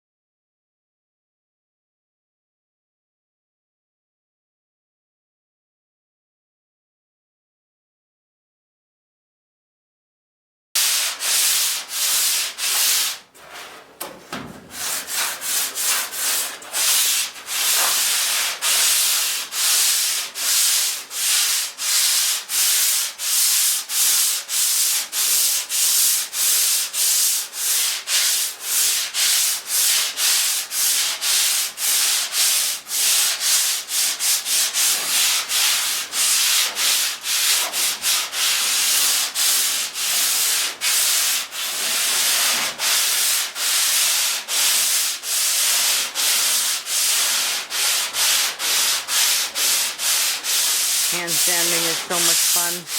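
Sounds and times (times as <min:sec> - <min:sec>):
sandpaper rasping on metal: 0:10.8 - 0:13.9, 0:14.7 - 0:52.9.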